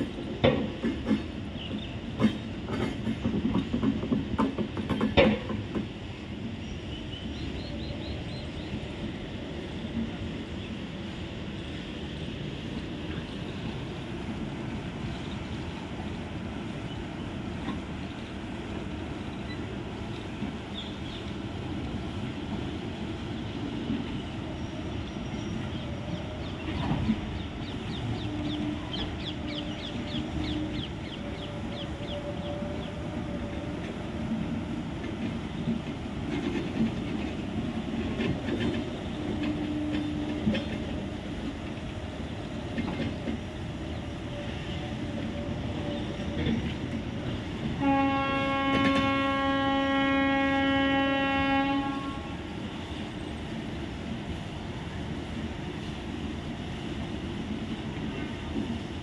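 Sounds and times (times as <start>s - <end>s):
wheels rumbling on rails: 0.0s - 59.0s
train horn: 27.9s - 34.2s, 38.6s - 41.0s, 44.2s - 46.6s, 47.7s - 53.1s.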